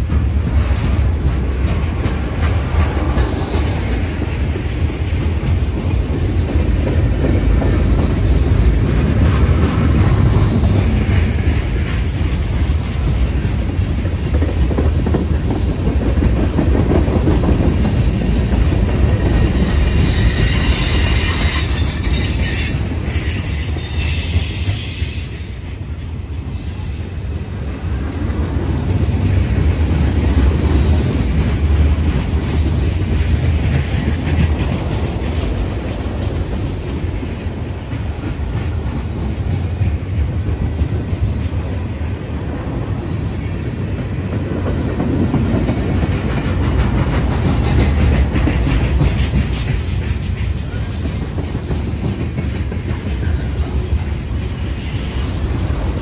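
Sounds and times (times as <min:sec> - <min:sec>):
train wheels rumbling on rails: 0:00.0 - 0:56.0
high-pitched wheel squeal: 0:19.6 - 0:25.6.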